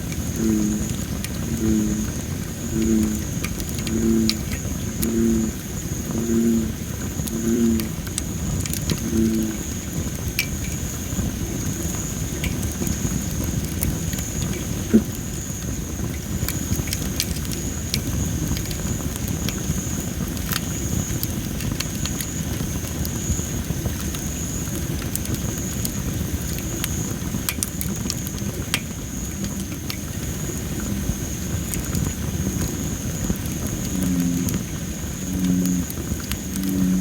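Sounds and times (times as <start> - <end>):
bullfrog deep calls: 0.0 - 15.6, 27.7 - 37.0
wood fire crackling and popping: 0.0 - 37.0.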